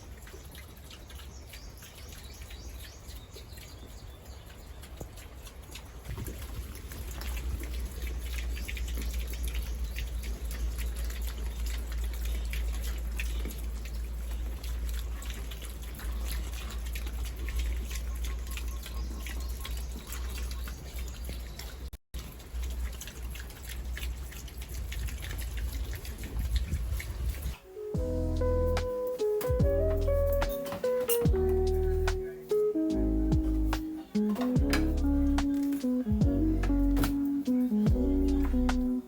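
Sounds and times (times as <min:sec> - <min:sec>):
water running and splashing: 0:00.0 - 0:39.0
steady low rumble: 0:26.4 - 0:28.9, 0:36.1 - 0:37.0, 0:37.9 - 0:38.9.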